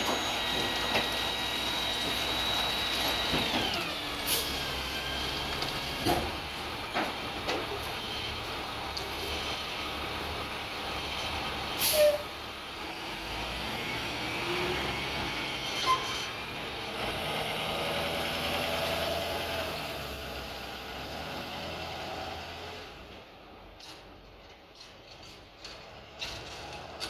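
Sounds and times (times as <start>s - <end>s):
truck engine running: 0.0s - 11.8s.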